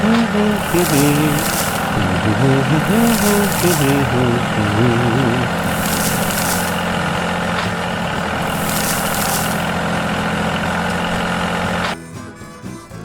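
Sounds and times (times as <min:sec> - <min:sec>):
soft music: 0:00.0 - 0:06.6
heavy vehicle engine idling: 0:00.0 - 0:12.0
short hiss bursts: 0:00.0 - 0:12.0.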